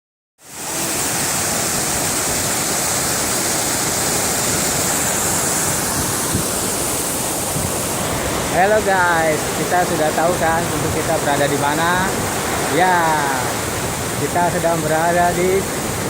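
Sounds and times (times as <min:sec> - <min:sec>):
waterfall rushing: 0:00.4 - 0:16.0.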